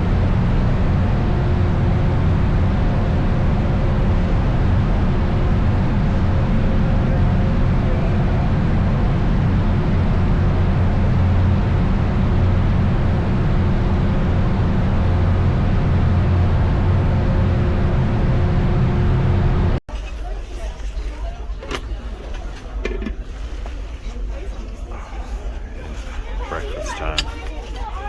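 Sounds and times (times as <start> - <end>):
faint constant tones: 0.0 - 28.0
vehicle engine drone: 0.0 - 28.0.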